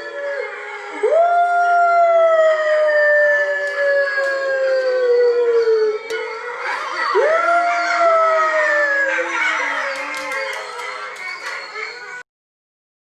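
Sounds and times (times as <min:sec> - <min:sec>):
lower howl: 0:00.0 - 0:10.4
wolf howl: 0:00.0 - 0:12.2.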